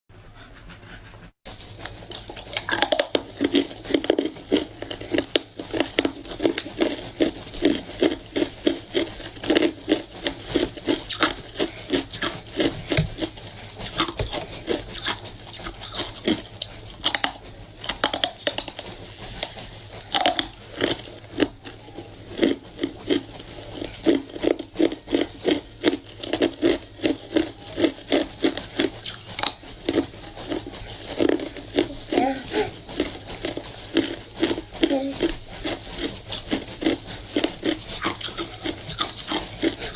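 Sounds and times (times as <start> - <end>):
ice being chewed: 1.5 - 39.9.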